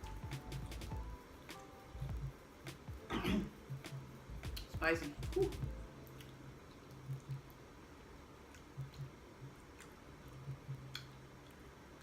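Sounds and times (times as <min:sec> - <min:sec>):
wet chewing mouth sounds: 0:08.4 - 0:11.7.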